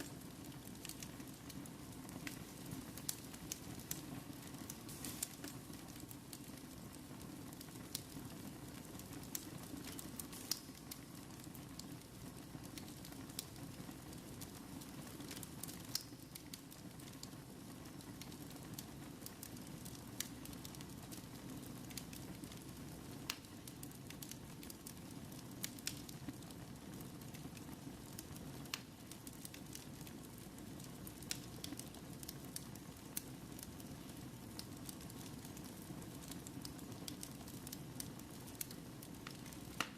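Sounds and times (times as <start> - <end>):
wood fire popping and crackling: 0.0 - 39.9.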